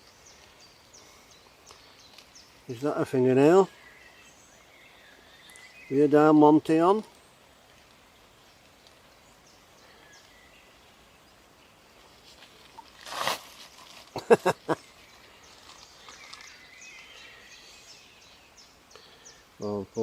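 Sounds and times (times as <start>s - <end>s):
faint bird chirps: 0.0s - 6.3s, 14.7s - 20.0s
brief rustle: 12.1s - 14.2s.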